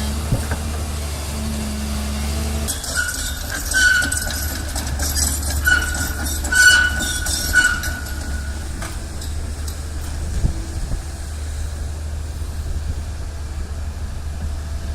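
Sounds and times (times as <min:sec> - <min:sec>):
heavy machinery rumbling: 0:00.0 - 0:14.9
high metallic squeal: 0:02.7 - 0:09.8.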